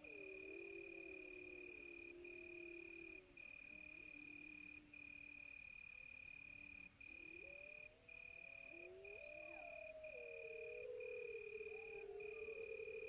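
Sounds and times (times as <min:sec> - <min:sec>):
crickets trilling: 0:00.0 - 0:13.0
distant wolves howling: 0:07.2 - 0:13.0.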